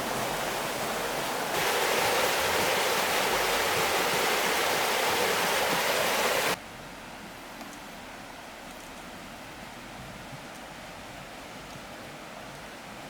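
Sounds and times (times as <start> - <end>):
rushing water: 0.0 - 6.6.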